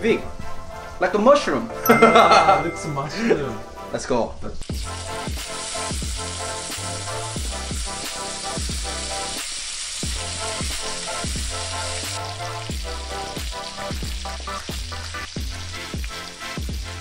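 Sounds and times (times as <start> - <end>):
food sizzling in butter: 4.6 - 17.0.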